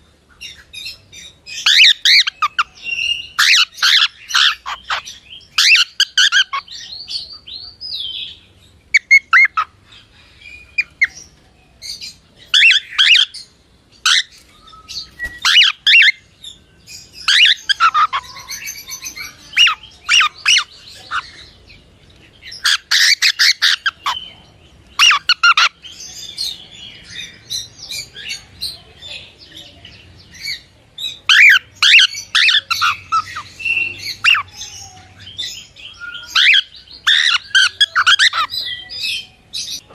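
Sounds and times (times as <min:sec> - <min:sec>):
cockatiel chirping and squawking: 0:01.6 - 0:02.7, 0:03.3 - 0:06.7, 0:09.0 - 0:09.7, 0:12.6 - 0:13.4, 0:15.2 - 0:16.2, 0:17.2 - 0:21.3, 0:22.6 - 0:24.2, 0:25.0 - 0:25.7, 0:31.2 - 0:34.8, 0:36.2 - 0:38.6.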